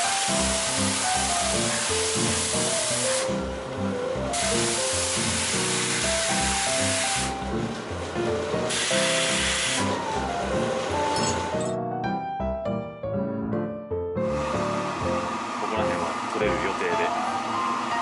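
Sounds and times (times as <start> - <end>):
pressure washer spray hissing: 0.0 - 3.4, 4.3 - 7.4, 8.7 - 10.0
background music: 0.0 - 18.0.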